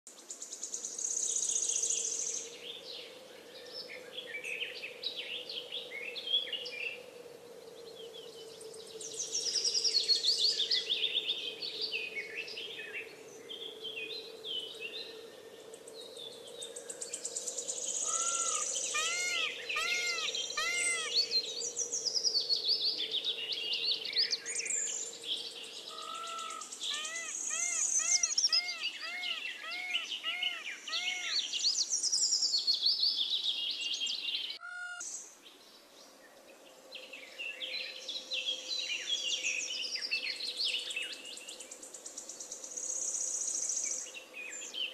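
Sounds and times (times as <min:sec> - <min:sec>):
chorus of birds chirping: 0:07.9 - 0:35.3
bird repeating arched call: 0:18.1 - 0:21.2, 0:26.0 - 0:31.4, 0:34.6 - 0:35.0.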